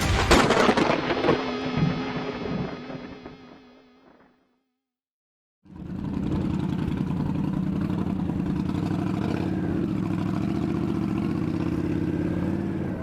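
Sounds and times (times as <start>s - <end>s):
motorcycle engine idling: 5.7s - 13.0s.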